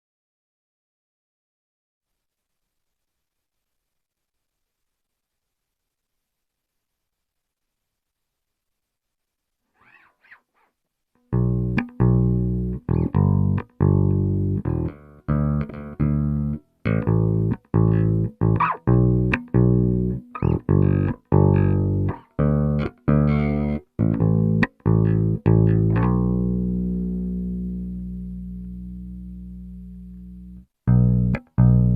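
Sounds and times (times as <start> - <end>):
plucked electric bass notes: 11.3 - 31.9.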